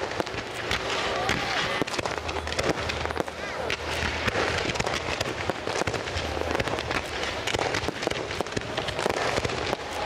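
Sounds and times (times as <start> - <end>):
fireworks crackling pops: 0.0 - 10.0.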